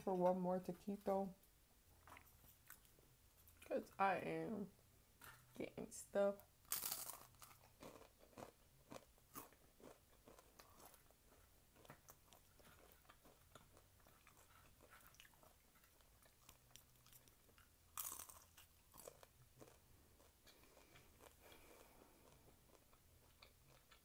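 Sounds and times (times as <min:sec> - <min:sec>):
chewing crispy fried food: 0:02.0 - 0:03.8, 0:06.6 - 0:24.0.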